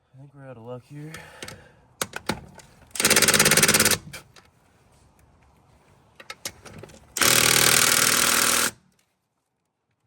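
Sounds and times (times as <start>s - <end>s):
impact wrench hammering: 3.0s - 4.0s, 7.2s - 8.8s.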